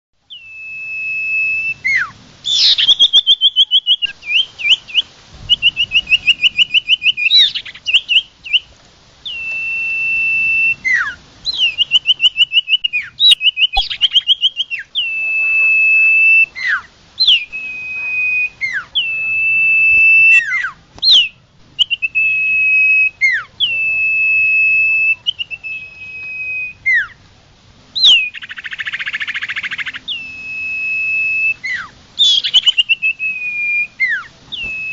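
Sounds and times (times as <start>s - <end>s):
songbird whistling and trilling: 0.3s - 27.2s, 28.0s - 34.9s.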